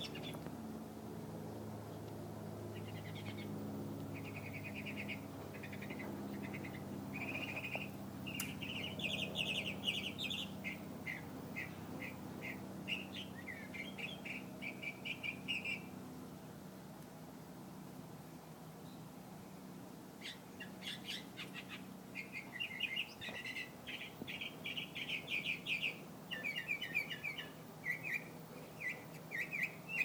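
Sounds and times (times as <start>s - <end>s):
songbird singing trills: 0.0s - 0.4s, 2.7s - 16.0s, 20.2s - 30.0s
steady low hum: 0.0s - 30.0s.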